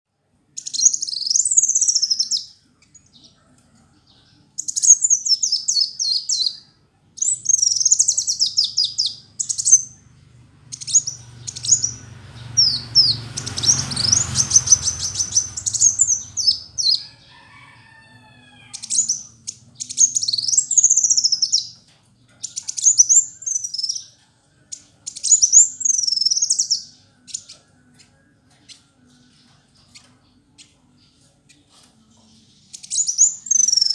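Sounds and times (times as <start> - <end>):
sunbird twittering: 7.2 - 17.9, 18.6 - 21.8, 22.4 - 27.6, 32.7 - 33.9
low rumble: 9.8 - 17.0.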